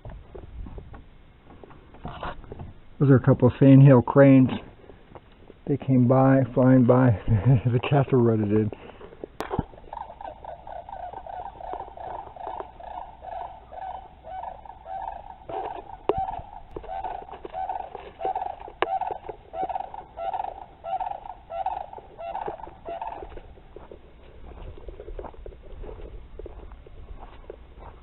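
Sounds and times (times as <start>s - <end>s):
cranes calling: 4.6s - 25.4s.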